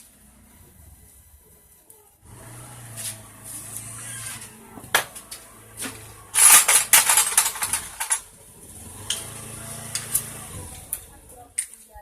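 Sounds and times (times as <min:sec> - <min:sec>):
metal tools clinking: 0:03.8 - 0:08.4.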